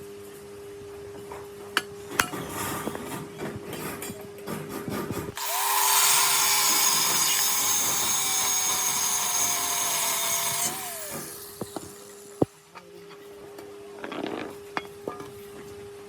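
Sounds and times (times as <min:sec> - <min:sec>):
electric power tool whining: 0:05.4 - 0:12.5.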